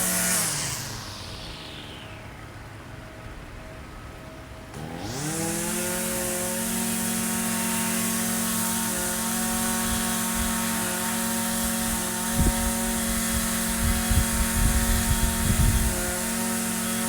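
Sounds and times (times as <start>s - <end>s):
string trimmer engine running: 0.0s - 3.6s, 4.2s - 17.0s.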